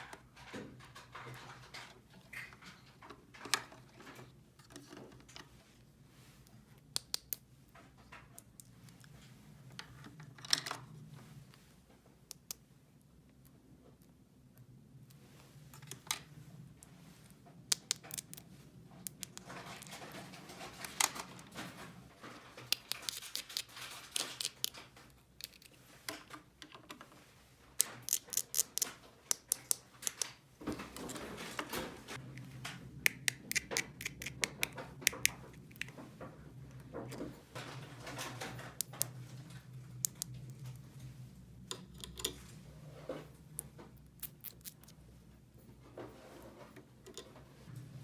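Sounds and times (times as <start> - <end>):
plastic toy pieces clicking: 28.1 - 30.3, 33.1 - 35.9.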